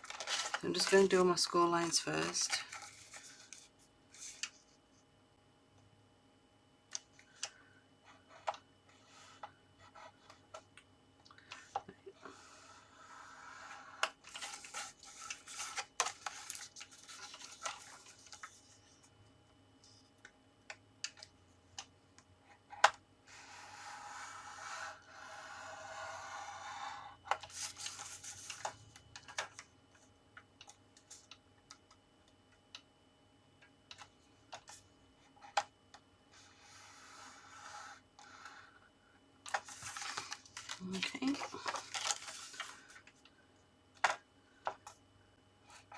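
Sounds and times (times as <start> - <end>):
scoring tool scraping card: 23.3 - 28.6, 36.4 - 38.7.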